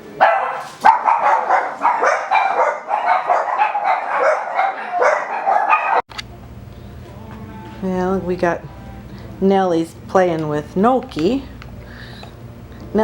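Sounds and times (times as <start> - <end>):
puppy yapping: 0.2 - 6.0.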